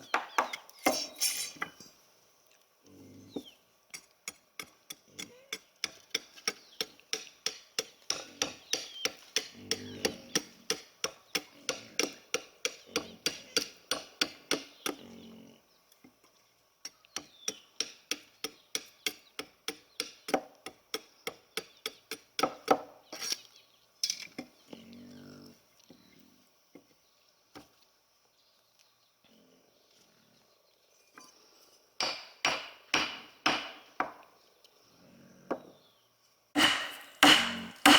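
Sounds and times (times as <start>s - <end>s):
chopping strikes on wood: 0.1s - 1.1s, 32.0s - 34.2s, 36.6s - 37.9s.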